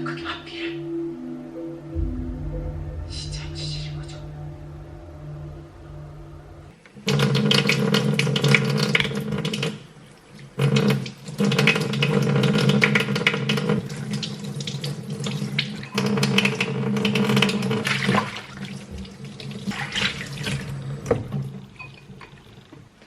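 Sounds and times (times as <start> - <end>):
tap water running into sink: 7.1 - 22.8.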